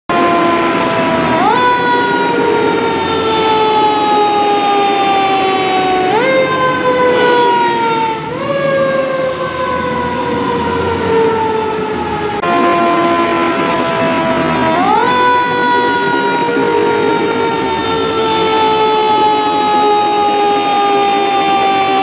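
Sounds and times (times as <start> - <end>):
fire engine siren wailing: 0.1 - 22.0.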